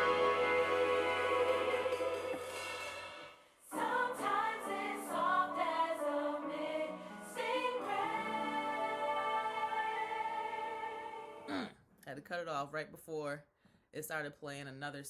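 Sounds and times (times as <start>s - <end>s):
gospel choir singing: 0.0s - 11.5s.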